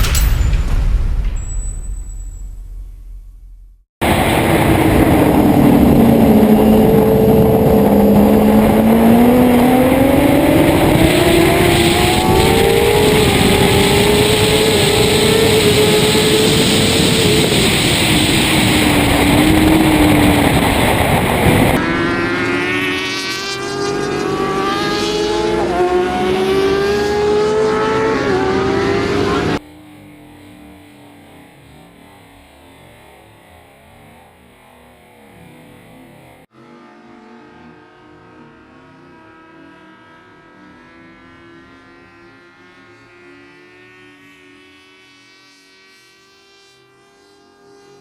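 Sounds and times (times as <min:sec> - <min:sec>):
wind rush: 0:00.0 - 0:22.0
motorcycle engines revving: 0:04.1 - 0:32.1.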